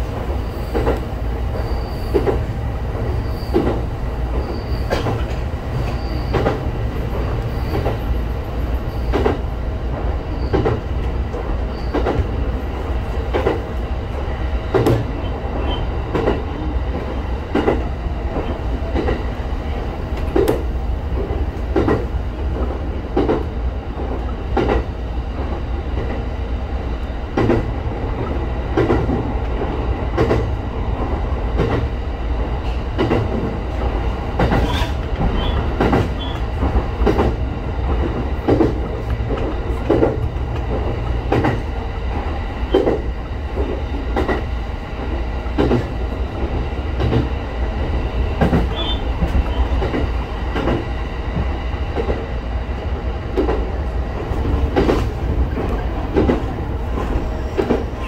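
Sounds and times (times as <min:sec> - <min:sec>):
train low rumble: 0:00.0 - 0:58.0
wheels clacking over rail joints: 0:00.7 - 0:08.2, 0:20.1 - 0:26.2, 0:32.6 - 0:52.3
high wheel squeals: 0:01.6 - 0:02.2, 0:04.4 - 0:05.0, 0:05.8 - 0:06.4.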